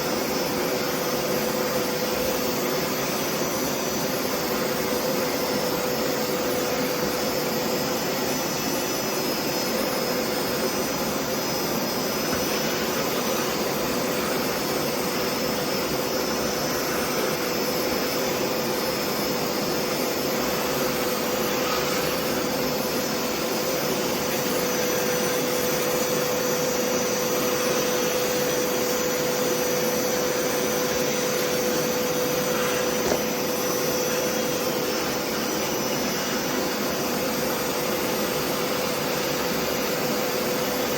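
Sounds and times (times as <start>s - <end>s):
carpet cleaner suction motor: 0.0s - 40.9s.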